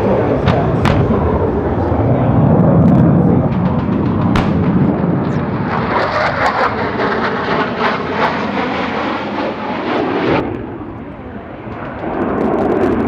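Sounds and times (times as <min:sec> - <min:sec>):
sharp cracks and bangs: 0:03.5 - 0:05.8.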